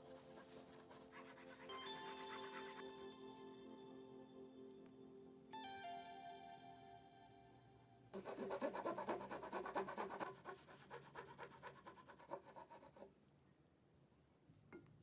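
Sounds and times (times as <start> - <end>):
music chord: 0.3 - 8.1
hand file rasping over metal: 8.2 - 13.0.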